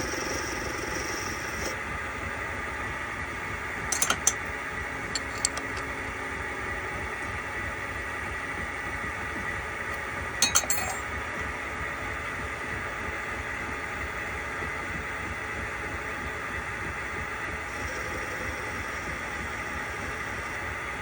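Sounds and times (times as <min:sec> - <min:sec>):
metal lathe running with faint whine: 0:00.0 - 0:21.0
metallic clinks: 0:10.4 - 0:11.1.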